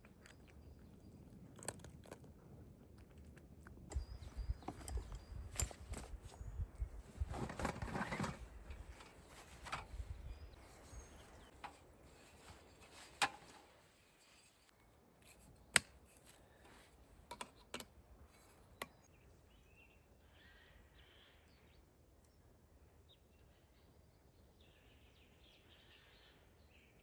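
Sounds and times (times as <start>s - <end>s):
faint bird chirps: 18.6s - 27.0s.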